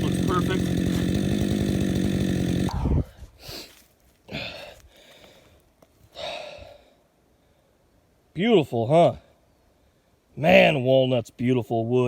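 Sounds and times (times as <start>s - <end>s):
chainsaw engine running: 0.0s - 3.0s
person breathing heavily: 2.7s - 7.8s.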